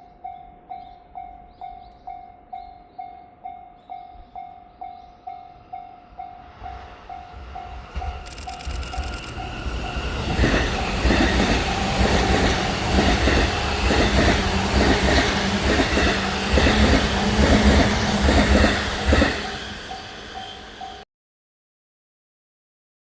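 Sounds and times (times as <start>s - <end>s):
train wheels clacking over rail joints: 8.0s - 21.0s.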